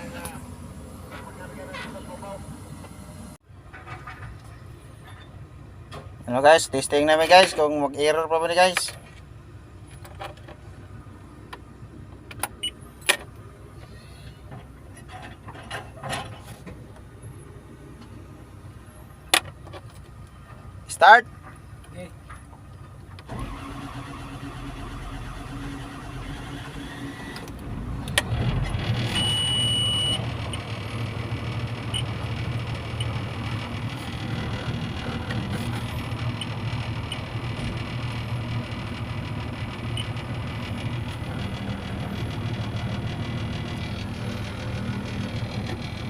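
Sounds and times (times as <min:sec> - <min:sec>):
excavator diesel engine running: 0:00.0 - 0:46.0
high beep: 0:29.1 - 0:30.2.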